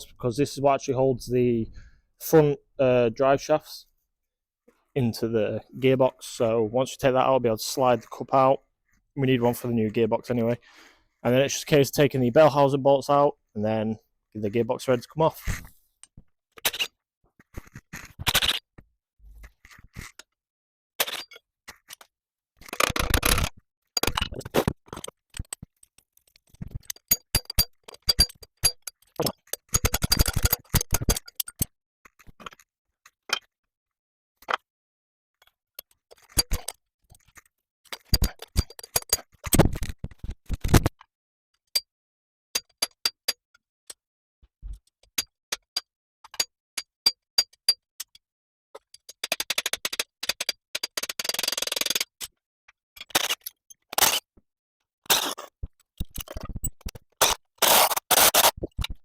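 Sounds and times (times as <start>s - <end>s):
metal tool clinks and scrapes: 21.0s - 22.1s, 22.7s - 32.6s, 35.4s - 39.9s, 55.1s - 59.0s.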